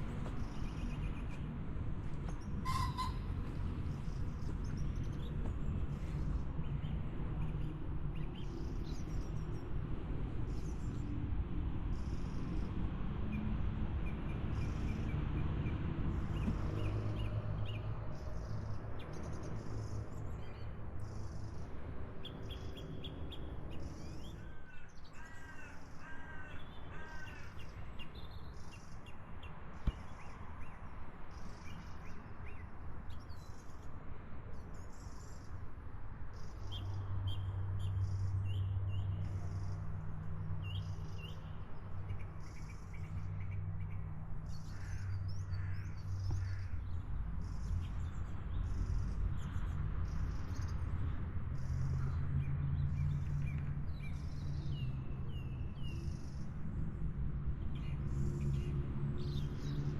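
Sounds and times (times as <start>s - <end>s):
birds calling: 2.6s - 3.3s.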